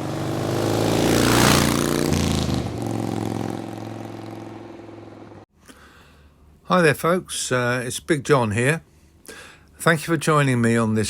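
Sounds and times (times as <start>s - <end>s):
motorcycle engine passing by: 0.0s - 5.4s.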